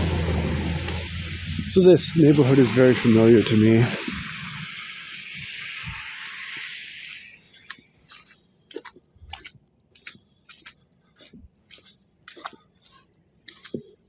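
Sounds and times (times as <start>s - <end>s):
hiss: 0.9s - 7.6s
footsteps crunching in snow: 1.0s - 14.0s.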